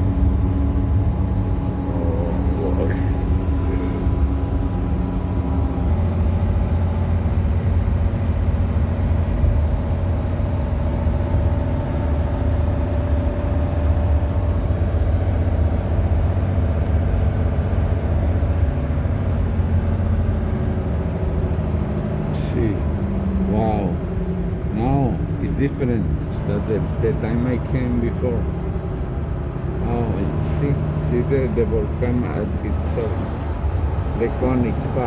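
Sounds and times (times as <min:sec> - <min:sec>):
bus engine droning: 0:00.0 - 0:35.0.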